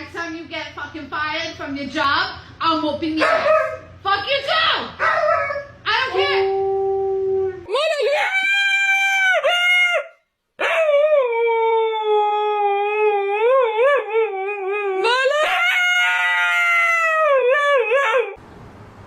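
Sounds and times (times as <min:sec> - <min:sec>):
husky howling: 0:05.0 - 0:18.4.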